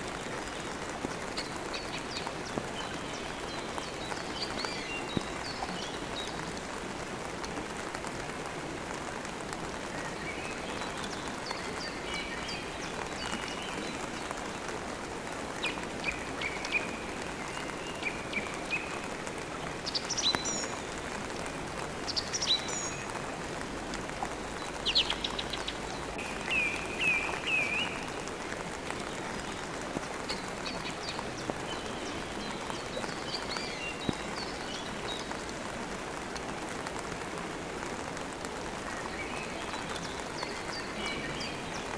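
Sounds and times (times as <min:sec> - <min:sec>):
steady rain: 0:00.0 - 0:41.9
small birds chirping: 0:24.6 - 0:35.6.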